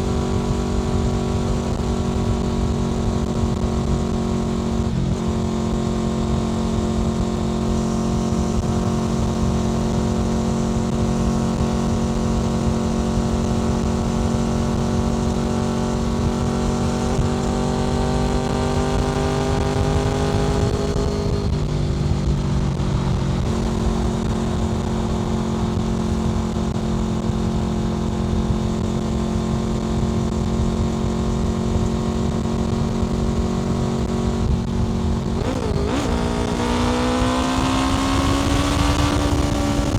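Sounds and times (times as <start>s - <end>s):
motorcycle engine cruising: 0.0s - 39.9s
wind noise: 30.2s - 39.9s.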